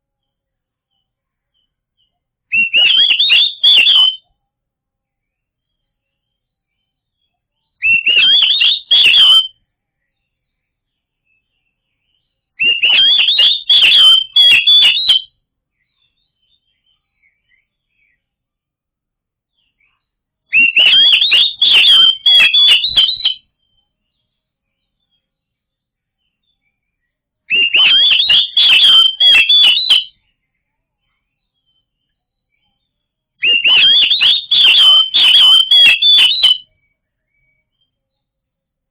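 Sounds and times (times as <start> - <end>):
songbird whistling and clicking: 2.5 - 4.2, 7.8 - 9.6, 12.1 - 18.2, 19.8 - 23.9, 27.5 - 30.3, 33.4 - 36.7.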